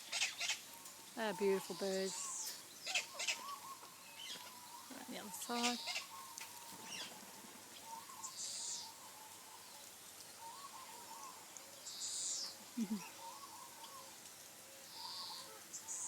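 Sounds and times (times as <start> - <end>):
faint bird warble: 0.0 - 16.0
harsh high bird calls: 1.2 - 7.1.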